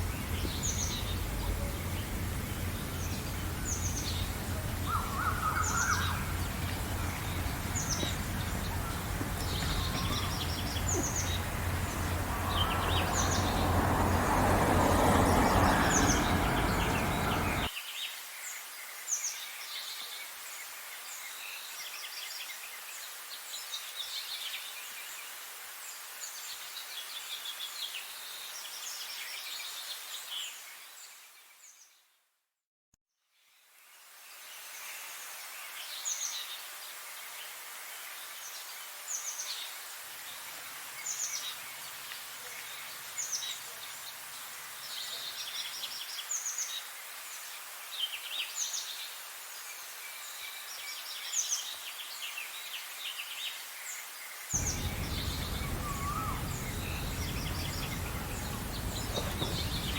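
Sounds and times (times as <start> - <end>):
rumbling background noise: 0.0 - 17.7, 54.6 - 59.9
small birds chirping: 0.0 - 17.7, 54.6 - 59.9.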